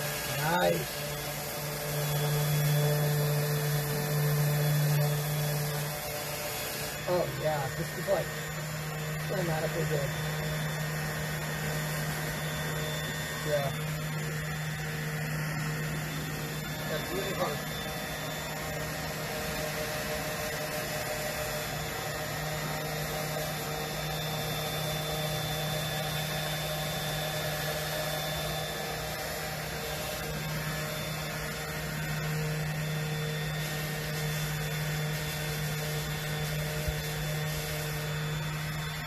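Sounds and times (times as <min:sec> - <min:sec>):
power sander running: 0:00.0 - 0:39.0.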